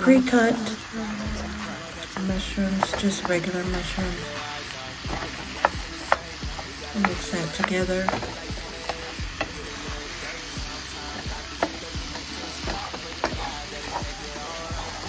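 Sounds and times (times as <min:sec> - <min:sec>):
vegetables sizzling in a frying pan: 0:00.0 - 0:15.0
wooden spoon scraping a pan: 0:05.1 - 0:15.0.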